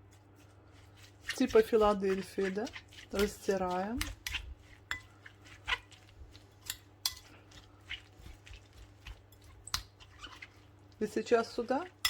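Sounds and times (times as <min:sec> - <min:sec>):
utensil clinking against bowl: 0:01.2 - 0:07.4.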